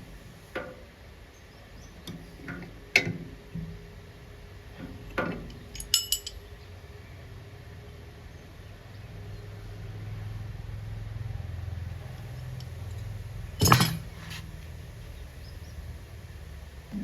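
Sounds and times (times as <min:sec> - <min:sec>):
metal object clinking: 0:05.8 - 0:06.4, 0:13.6 - 0:14.4
low rumble of handling: 0:12.0 - 0:15.4.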